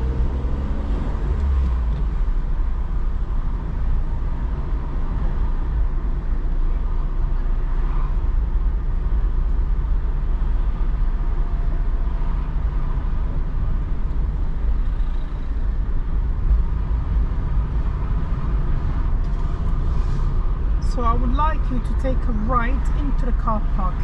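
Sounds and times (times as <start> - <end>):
car engine inside cabin: 0.0 - 24.0
tyres on wet road: 6.4 - 24.0.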